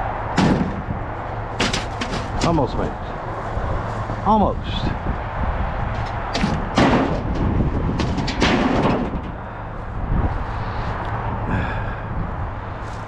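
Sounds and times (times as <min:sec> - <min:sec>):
knocks and clatters: 0:01.6 - 0:02.8, 0:05.9 - 0:09.4.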